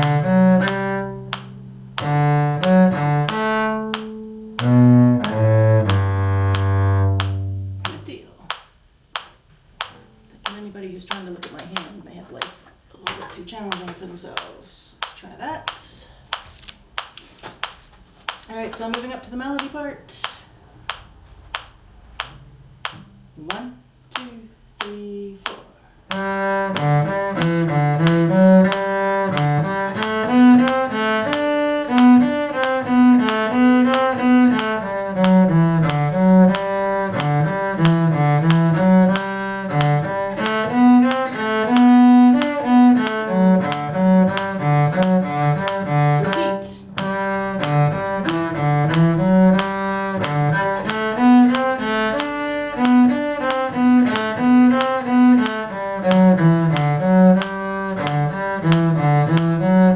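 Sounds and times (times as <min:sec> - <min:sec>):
bowed string instrument melody: 0:00.0 - 0:08.2, 0:26.1 - 0:59.9.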